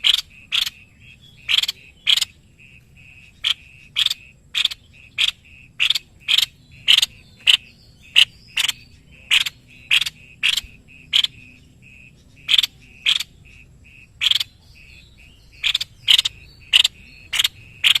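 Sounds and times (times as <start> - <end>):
bird calling sharp notes: 0.0 - 18.0.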